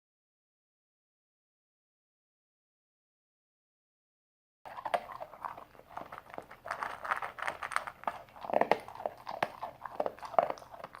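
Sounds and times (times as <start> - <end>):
puppy chewing: 4.7 - 11.0.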